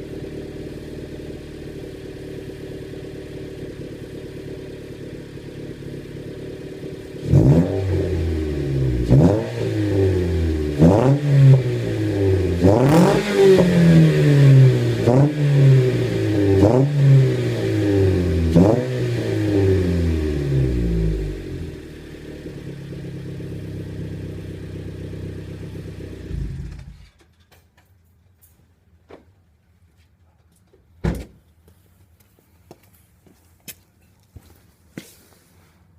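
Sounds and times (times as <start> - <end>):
car engine idling: 0.0 - 7.3, 19.8 - 27.1
car engine revving: 0.0 - 27.1.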